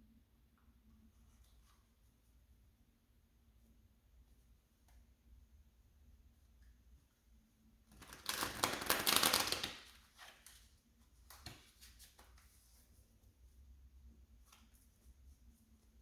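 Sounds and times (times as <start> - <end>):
cards being shuffled: 7.9 - 10.7.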